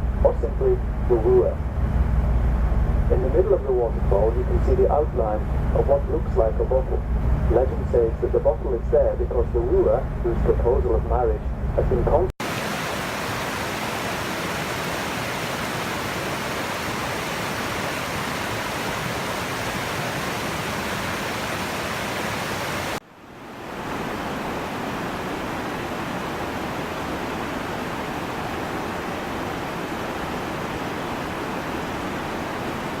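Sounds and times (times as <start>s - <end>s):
waterfall roaring: 3.1s - 11.1s, 11.9s - 33.0s.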